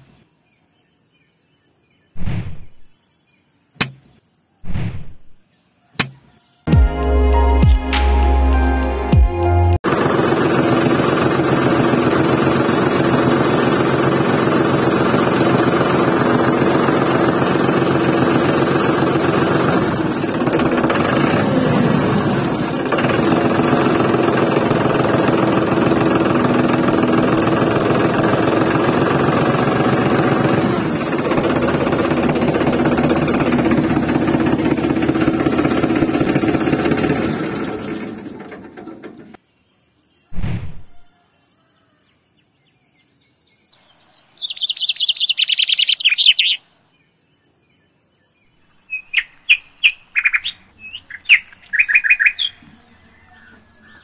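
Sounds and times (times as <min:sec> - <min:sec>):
tractor engine running: 0:07.6 - 0:39.4, 0:48.9 - 0:52.8.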